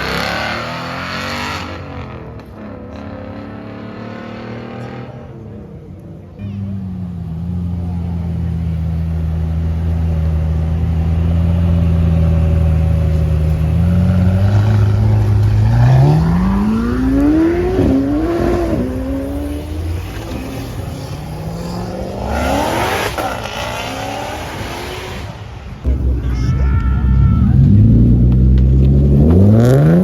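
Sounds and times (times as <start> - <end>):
car engine revving: 0.0 - 5.4, 6.8 - 30.0.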